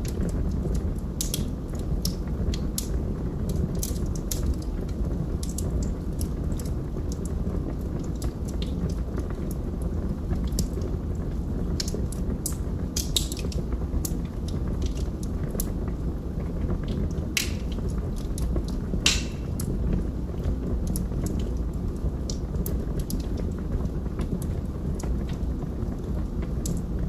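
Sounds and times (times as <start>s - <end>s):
wood fire crackling: 0.0s - 27.0s
logs popping: 17.4s - 17.8s, 19.0s - 19.7s.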